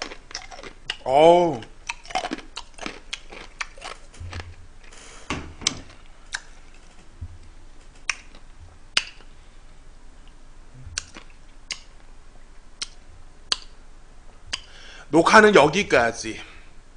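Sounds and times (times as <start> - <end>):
person chewing food: 0.0 - 4.9, 5.8 - 6.8, 7.4 - 9.3, 10.2 - 12.0, 12.8 - 13.8, 14.5 - 14.8.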